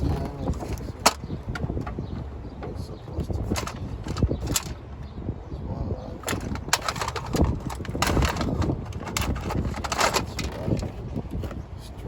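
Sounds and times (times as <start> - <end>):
metal parts and hand tools clicking: 3.5 - 4.8, 6.2 - 10.9.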